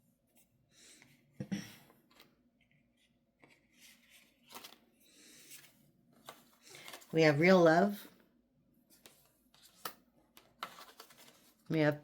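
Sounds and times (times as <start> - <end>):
cards rustling and tapping: 2.1 - 7.1, 8.9 - 11.7.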